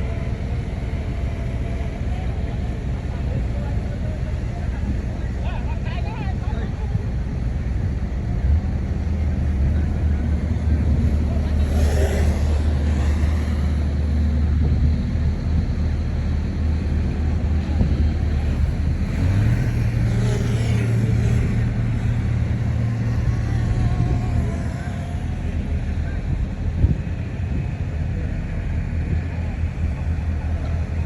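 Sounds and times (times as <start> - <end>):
heavy diesel engine revving: 8.8 - 27.8.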